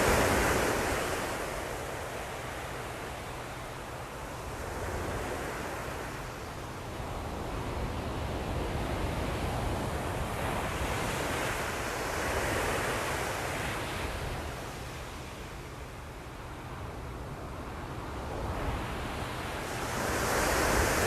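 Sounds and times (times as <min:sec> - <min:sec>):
ocean waves washing: 0:00.0 - 0:03.7.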